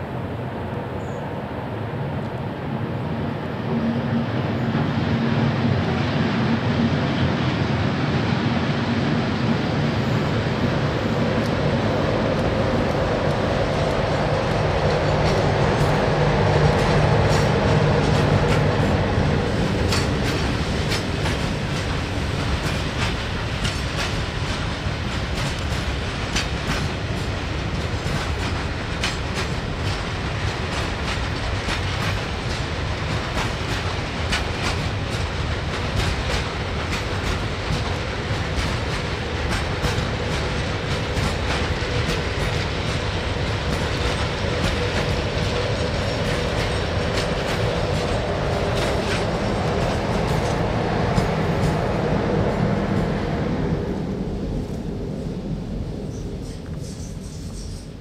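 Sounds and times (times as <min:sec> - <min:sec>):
train wheels rumbling on rails: 0:00.0 - 0:58.0
rail joint clicks: 0:11.2 - 0:54.9, 0:55.9 - 0:58.0.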